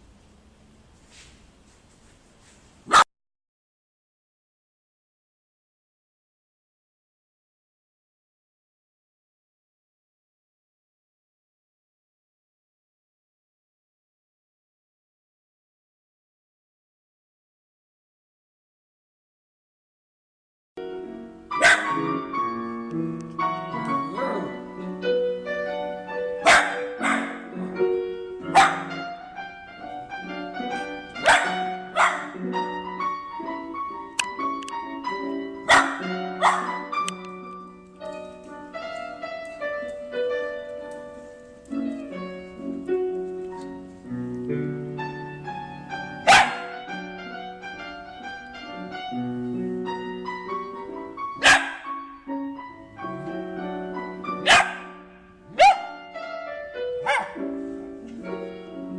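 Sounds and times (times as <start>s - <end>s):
piano music: 20.8s - 58.9s
dogs barking: 21.6s - 22.2s, 26.4s - 27.6s, 28.4s - 29.1s, 30.8s - 32.5s, 35.6s - 37.2s, 46.2s - 46.9s, 51.4s - 52.1s, 54.4s - 56.1s, 57.0s - 57.5s.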